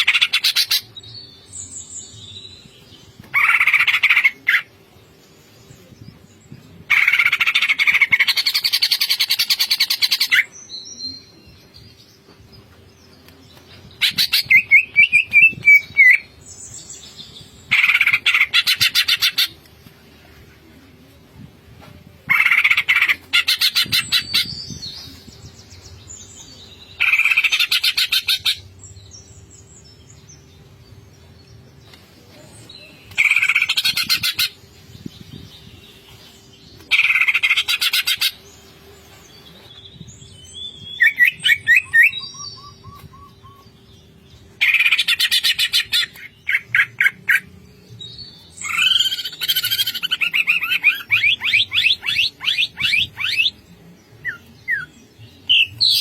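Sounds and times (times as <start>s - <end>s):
bird chirping: 32.8s - 56.0s.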